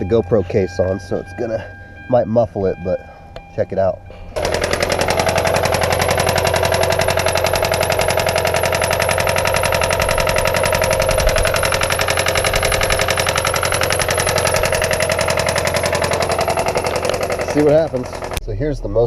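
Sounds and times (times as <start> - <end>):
car engine knocking: 4.4 - 18.4.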